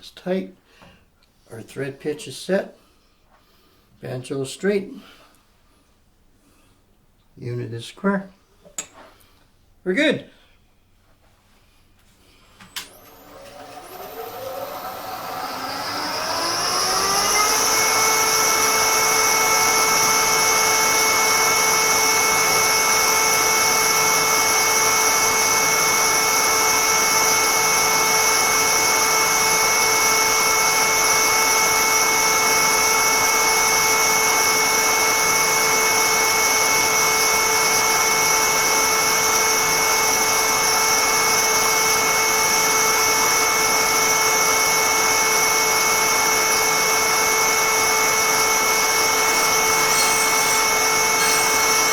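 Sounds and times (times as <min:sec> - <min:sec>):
power tool motor whining: 0:12.7 - 0:51.9.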